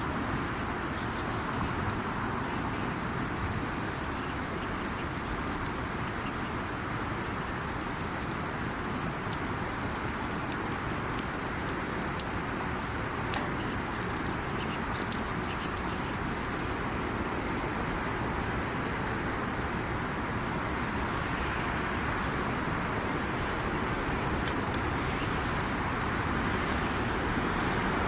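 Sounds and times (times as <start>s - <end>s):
campfire burning: 22.5s - 27.4s.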